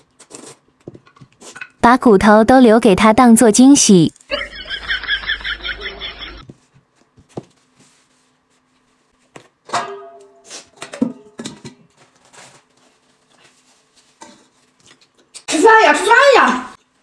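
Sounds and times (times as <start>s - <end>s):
metal basins clanking on table: 9.6s - 11.9s.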